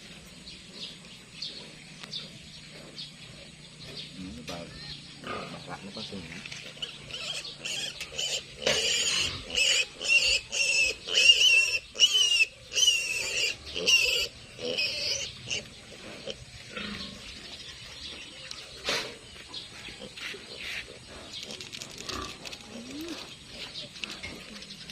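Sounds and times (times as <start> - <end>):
piglet squealing: 6.8 - 15.6.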